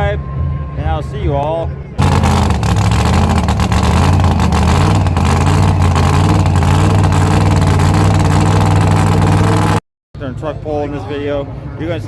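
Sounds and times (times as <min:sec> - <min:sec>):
loud engine running: 0:02.0 - 0:09.8.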